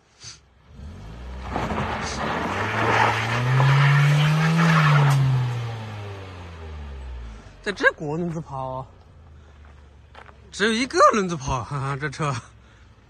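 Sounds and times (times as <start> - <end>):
car engine revving: 0.6 - 8.5
wheel spinning on loose dirt: 1.4 - 5.2.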